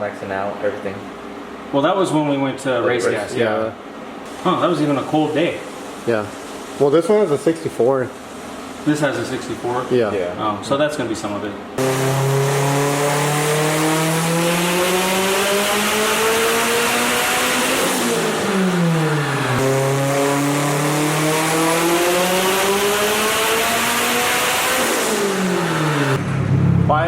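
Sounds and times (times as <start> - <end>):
turbocharged car engine revving: 11.8 - 27.0.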